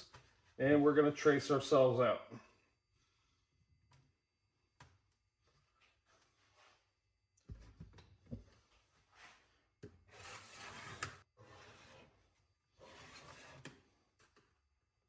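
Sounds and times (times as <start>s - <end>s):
scraping on sheet metal: 10.1s - 12.1s.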